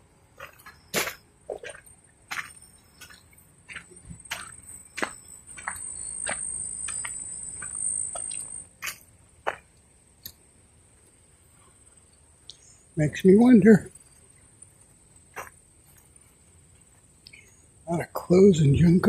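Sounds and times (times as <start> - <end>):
steady high-pitched whine: 0.0 - 19.0
footsteps crunching on dry ground: 0.4 - 9.7.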